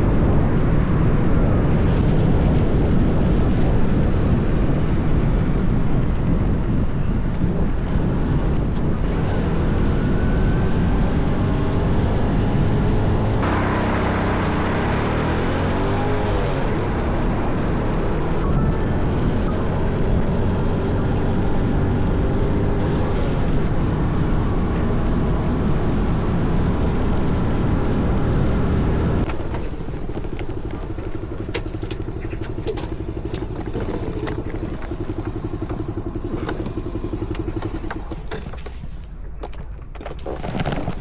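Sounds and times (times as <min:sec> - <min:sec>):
wind noise: 0:00.0 - 0:41.0
motorcycle engine running: 0:13.4 - 0:24.3, 0:29.2 - 0:39.6.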